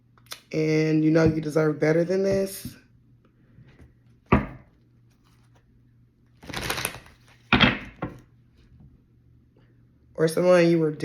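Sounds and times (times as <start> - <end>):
knock on a table: 4.3 - 4.7
rustle of cards: 6.4 - 7.5.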